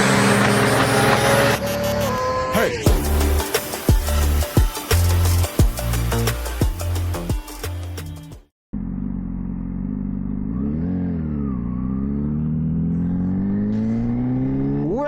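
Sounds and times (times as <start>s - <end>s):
motorcycle engine revving: 0.0s - 2.1s, 8.7s - 15.0s.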